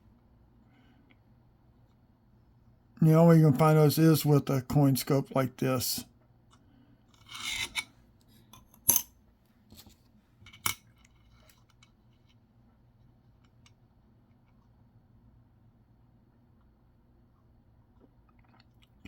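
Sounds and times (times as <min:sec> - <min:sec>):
coins scraping on hard surface: 0:07.2 - 0:07.8.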